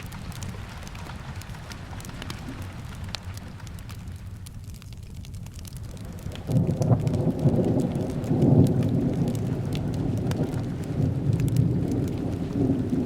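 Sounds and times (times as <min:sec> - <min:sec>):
sharp crackles: 0:00.0 - 0:13.0
steady rain: 0:00.0 - 0:13.0
thunder rumbling: 0:05.9 - 0:13.0.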